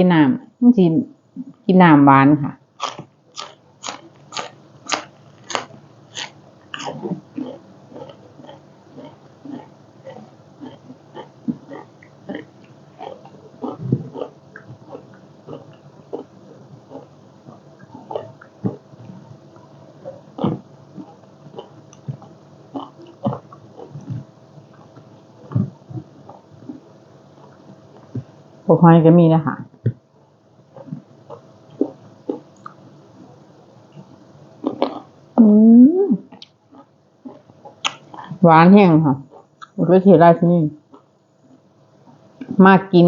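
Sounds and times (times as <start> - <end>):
person chewing raw vegetable: 2.8 - 28.4, 30.7 - 35.2, 36.3 - 38.4, 39.3 - 39.8, 40.9 - 42.6.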